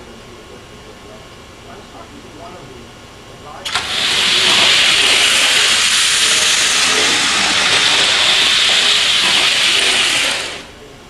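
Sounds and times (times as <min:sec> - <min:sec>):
toy steam train hissing: 0:03.7 - 0:10.7.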